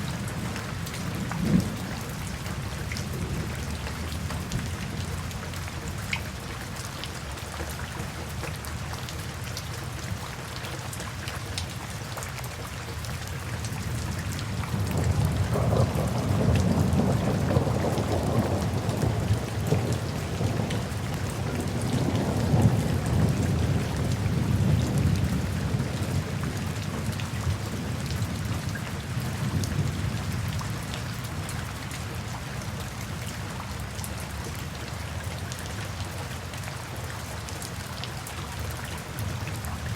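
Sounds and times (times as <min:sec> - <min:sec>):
steady rain falling: 0:00.0 - 0:39.9
low roll of thunder: 0:00.1 - 0:05.2, 0:14.5 - 0:30.8.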